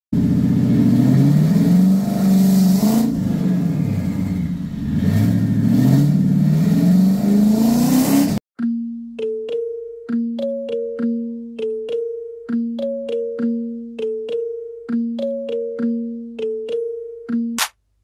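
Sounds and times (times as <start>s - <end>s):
turbocharged engine revving: 0.2s - 8.4s.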